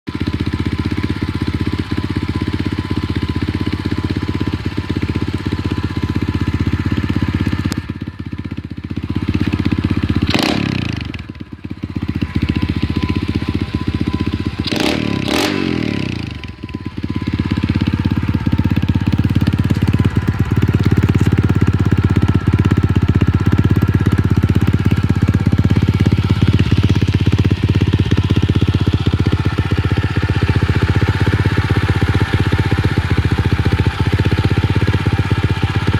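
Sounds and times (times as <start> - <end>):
pit bike engine running: 0.1 - 35.9.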